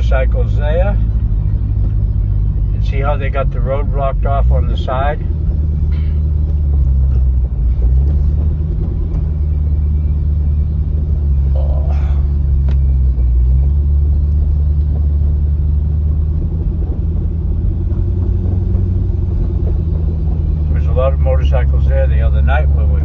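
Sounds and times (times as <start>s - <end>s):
car engine heard from inside: 0.0s - 23.0s
road rumble: 0.0s - 23.0s.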